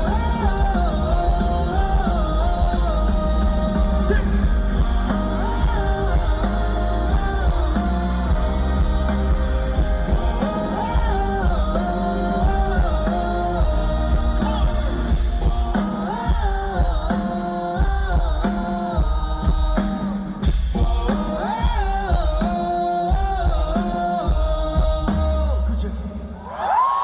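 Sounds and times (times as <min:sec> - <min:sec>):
bass guitar: 0:00.0 - 0:15.8
man singing: 0:00.0 - 0:26.4
drums: 0:00.0 - 0:27.0.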